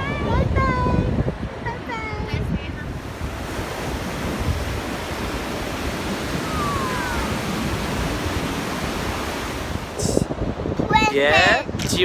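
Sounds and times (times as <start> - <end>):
wind on microphone: 0.0 - 12.0
ocean surf washing ashore: 2.5 - 11.6
faint gliding tone: 2.8 - 10.1.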